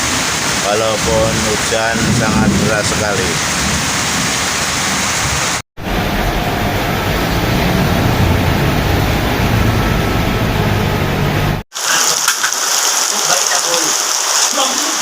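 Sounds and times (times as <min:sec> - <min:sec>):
heavy rain pouring: 0:00.0 - 0:15.0
deep rumble: 0:05.8 - 0:11.6.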